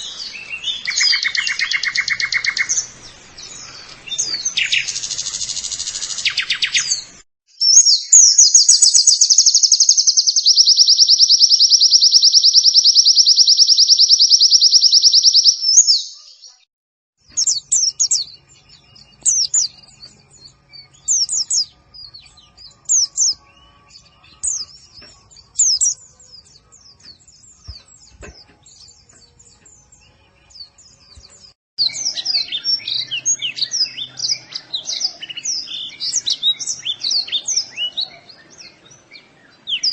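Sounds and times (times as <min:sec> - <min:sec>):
fast bird trill: 0:00.0 - 0:16.2, 0:20.8 - 0:26.5
short high bird chirps: 0:00.0 - 0:16.7.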